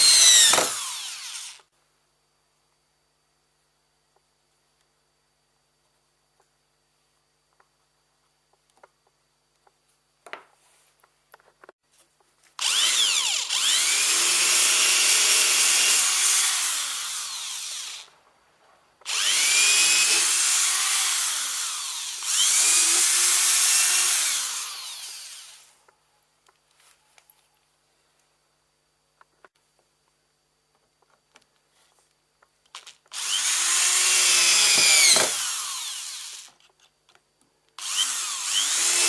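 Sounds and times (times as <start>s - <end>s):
electric planer motor: 0.0s - 1.6s, 12.6s - 18.1s, 19.1s - 25.6s, 33.2s - 36.5s, 37.8s - 39.0s.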